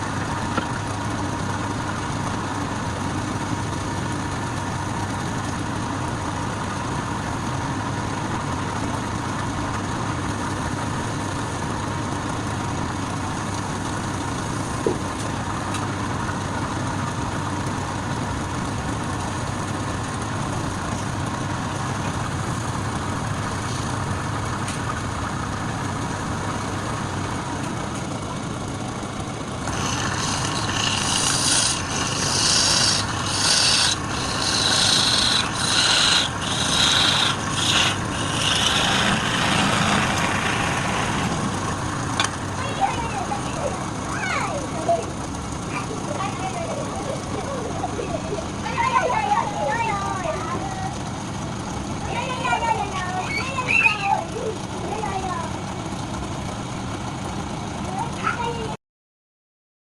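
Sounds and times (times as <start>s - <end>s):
wood lathe motor hum: 0.0s - 46.2s
tool scraping spinning wood: 13.1s - 28.2s, 29.0s - 45.1s.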